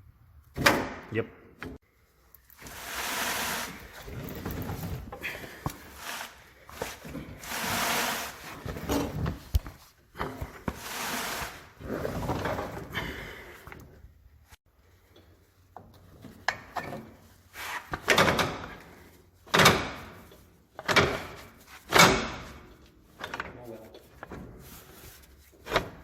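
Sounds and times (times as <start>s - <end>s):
heavy machine scraping over rollers: 2.6s - 9.2s, 10.3s - 13.0s.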